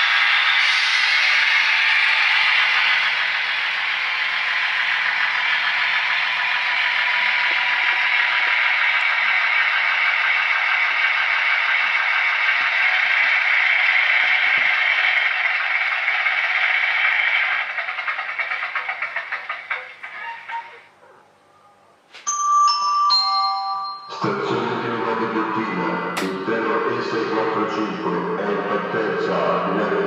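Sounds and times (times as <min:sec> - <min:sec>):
model train rattling on rails: 0:00.0 - 0:21.0
fast run of clicks: 0:04.3 - 0:20.8.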